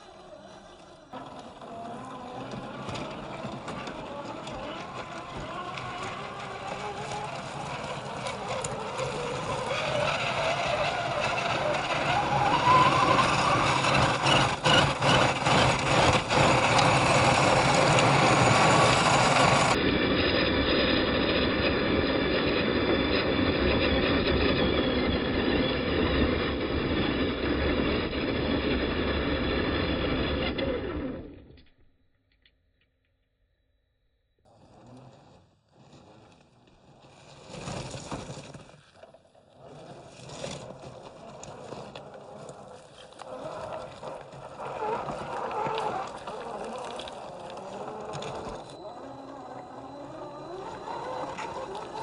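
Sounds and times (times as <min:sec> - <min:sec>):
tyres crunching dirt: 0:00.0 - 0:19.8, 0:34.5 - 0:52.0
electric motor and gears whining: 0:00.0 - 0:31.8, 0:39.5 - 0:52.0.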